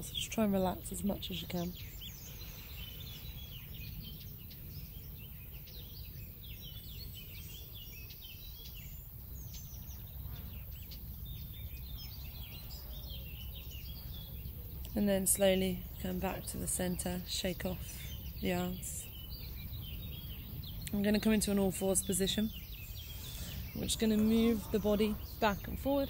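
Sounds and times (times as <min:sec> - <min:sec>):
small birds chirping and trilling: 0:00.0 - 0:26.0
steady low rumble: 0:09.2 - 0:26.0.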